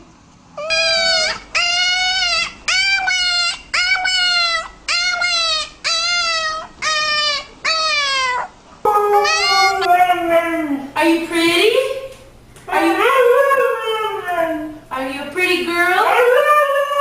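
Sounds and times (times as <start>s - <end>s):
dog whining: 0.6s - 10.9s.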